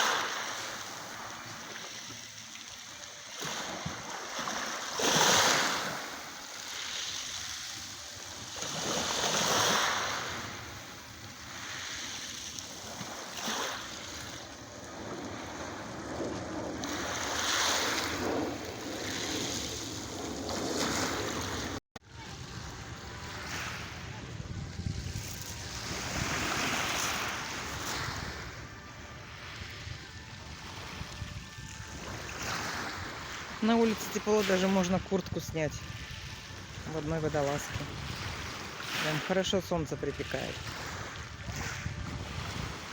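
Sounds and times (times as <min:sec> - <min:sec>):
sea waves breaking on shore: 0:00.0 - 0:42.9.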